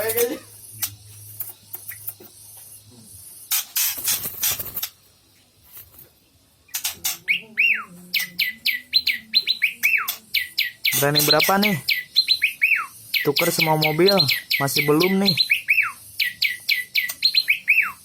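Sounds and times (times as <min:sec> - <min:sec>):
bird clicks and whistles: 0:00.8 - 0:02.3, 0:09.0 - 0:18.0
harsh raspy bird notes: 0:06.7 - 0:18.0.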